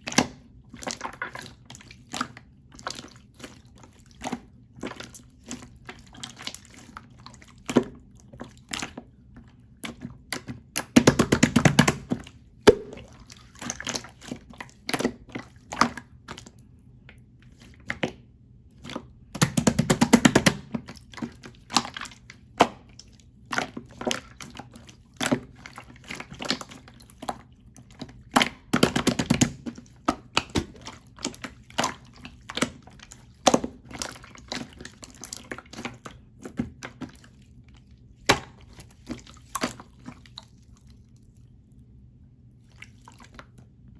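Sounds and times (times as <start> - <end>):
slime squishing wet clicks: 9.8 - 16.5.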